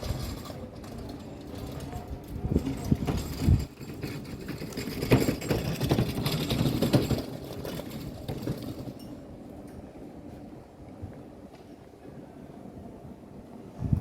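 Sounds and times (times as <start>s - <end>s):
knocks and clatter: 0.0s - 9.2s.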